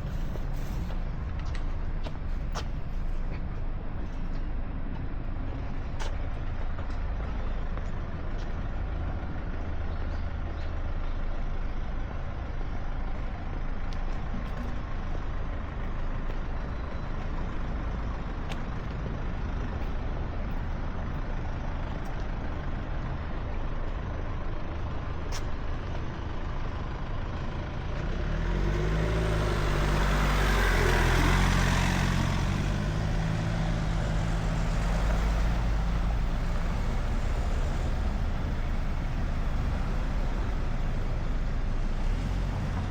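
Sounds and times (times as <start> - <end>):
road traffic rumbling: 0.0 - 42.9
heavy vehicle passing close: 28.1 - 42.9.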